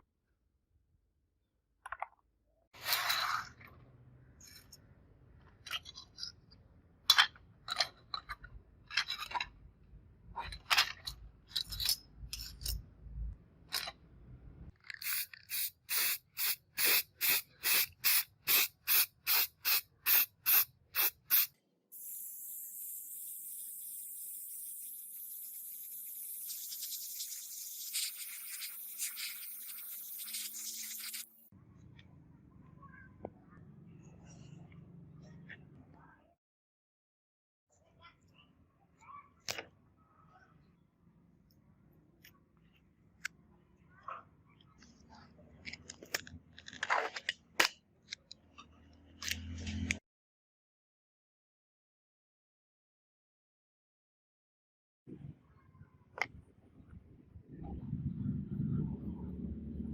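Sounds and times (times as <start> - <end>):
spray hiss: 15.1 - 31.4.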